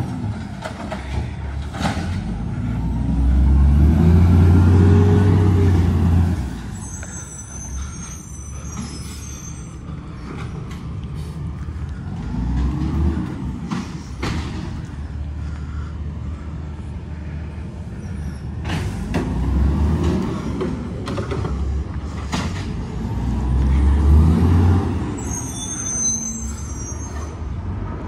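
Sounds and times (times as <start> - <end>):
diesel truck engine revving: 1.9 - 6.8, 9.9 - 17.1, 18.2 - 26.9
high squeal: 6.4 - 10.6, 25.1 - 27.6.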